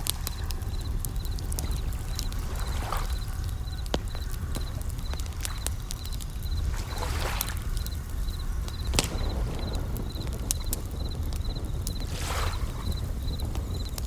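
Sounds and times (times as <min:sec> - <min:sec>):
bell crickets chirping: 0:00.0 - 0:14.0
campfire crackling and popping: 0:00.0 - 0:14.0
steady low rumble: 0:00.0 - 0:14.0
wave washing in: 0:08.8 - 0:13.6.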